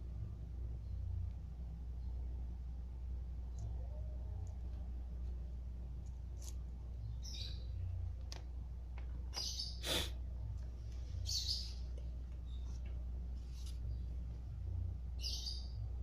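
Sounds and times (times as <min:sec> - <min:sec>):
steady low hum: 0:00.0 - 0:16.0
birds chirping: 0:06.9 - 0:08.1, 0:09.2 - 0:10.0, 0:10.9 - 0:14.4, 0:15.2 - 0:16.0.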